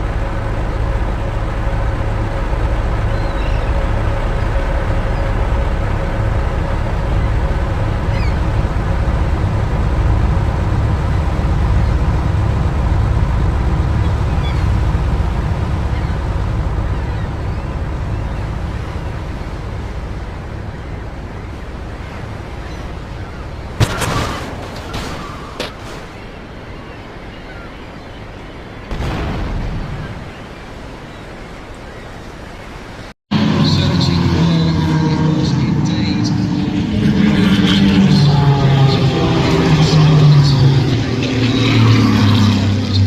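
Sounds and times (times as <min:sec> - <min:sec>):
race car engines running: 0:00.0 - 0:26.6, 0:33.3 - 0:43.0.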